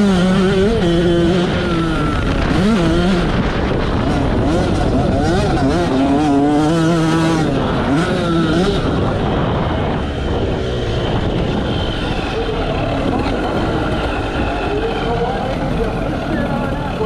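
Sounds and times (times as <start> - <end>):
heavy wind: 0.0 - 17.0
track noise: 0.0 - 17.0
two-stroke engine revving: 0.0 - 17.0.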